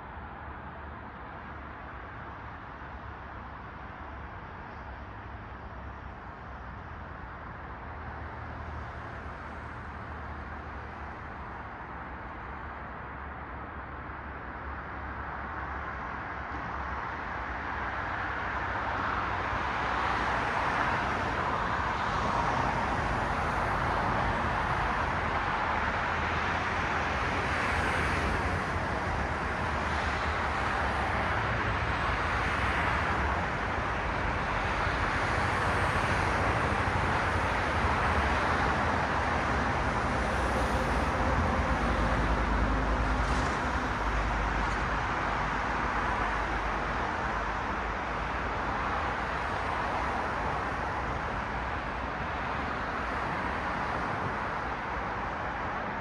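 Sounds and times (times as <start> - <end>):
cars passing: 18.0 - 56.0.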